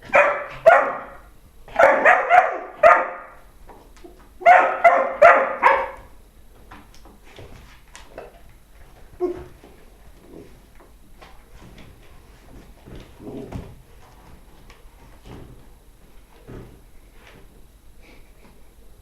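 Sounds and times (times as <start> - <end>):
dog barking: 0.0 - 3.4, 4.4 - 6.1.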